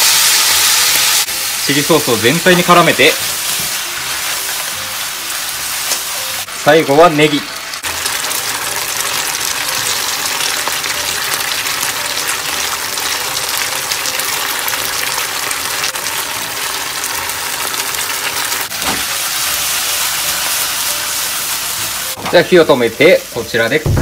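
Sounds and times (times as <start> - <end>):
food sizzling in a frying pan: 0.0 - 23.8.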